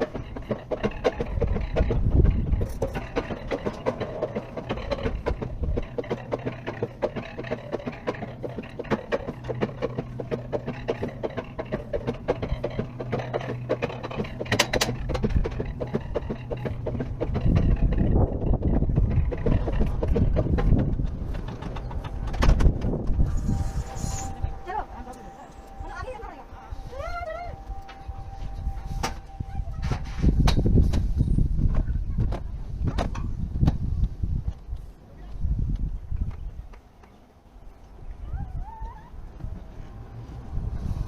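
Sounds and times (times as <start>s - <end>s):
steady low hum: 0.0s - 38.2s
roller coaster cart clicking: 0.0s - 41.0s
low rush: 15.0s - 30.9s.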